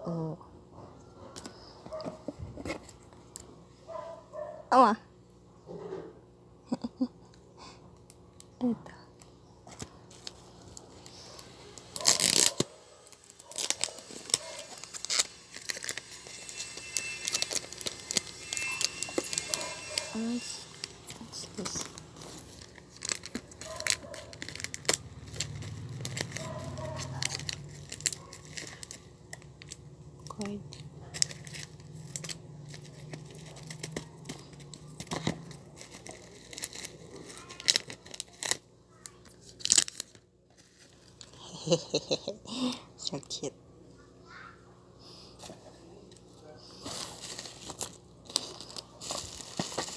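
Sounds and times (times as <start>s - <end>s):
packaging ripping: 9.7s - 29.8s, 30.7s - 41.2s, 46.8s - 49.9s
packaging rustling: 9.7s - 29.8s, 30.4s - 38.6s, 39.2s - 41.3s, 46.8s - 49.9s.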